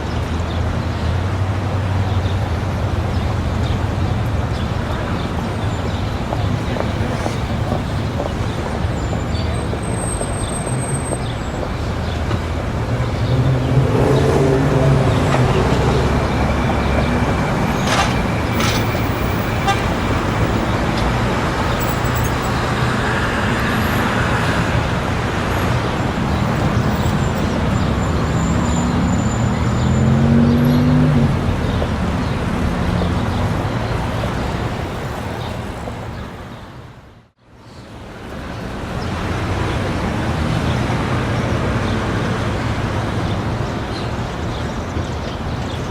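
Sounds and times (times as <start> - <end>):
vehicles passing: 0.0 - 45.9
car horn tooting: 15.2 - 20.5.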